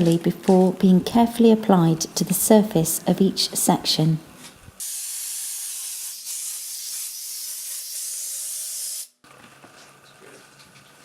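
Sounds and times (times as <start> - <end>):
spray gun hissing: 4.8 - 9.1.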